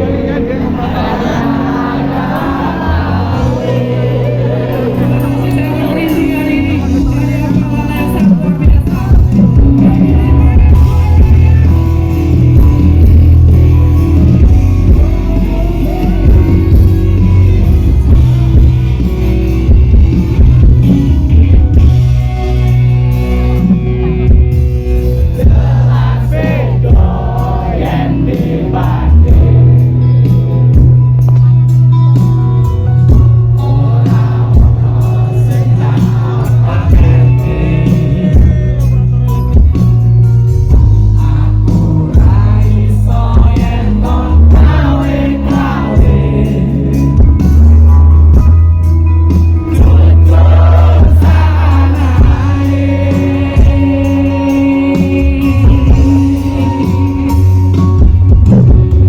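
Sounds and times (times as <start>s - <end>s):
heavy bass: 0.0s - 59.0s
live band music: 0.0s - 59.0s
person singing: 49.8s - 57.8s.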